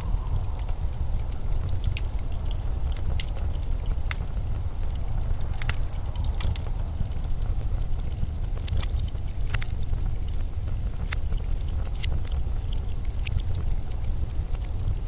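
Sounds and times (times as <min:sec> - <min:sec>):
blizzard wind rumbling: 0:00.0 - 0:15.0
sharp crackles and ticks: 0:00.0 - 0:15.0.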